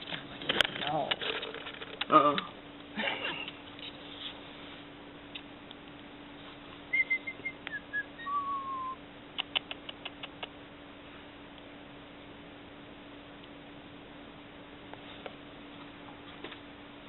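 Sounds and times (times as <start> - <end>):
parrot whistled chirps: 6.9 - 9.0
sharp clicks: 9.4 - 10.6.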